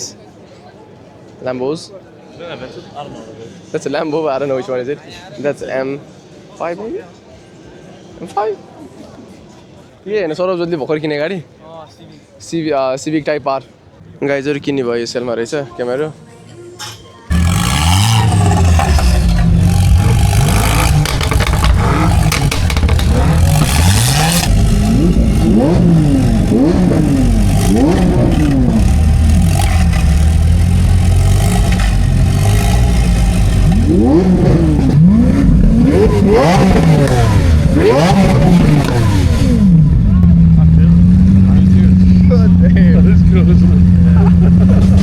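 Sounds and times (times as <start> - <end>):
car engine revving: 17.3 - 45.0.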